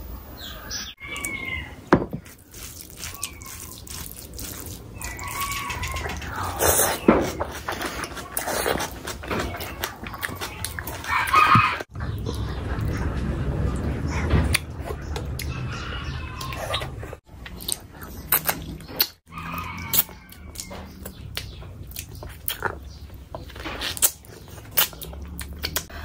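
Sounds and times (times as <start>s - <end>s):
wet chewing: 2.2s - 13.2s, 16.3s - 26.0s
lip smacks and slurps: 2.3s - 11.2s.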